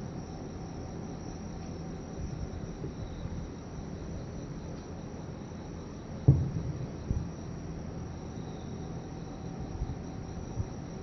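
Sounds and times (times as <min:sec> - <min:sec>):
insects trilling: 0:00.0 - 0:11.0
distant firework booms: 0:06.2 - 0:07.3.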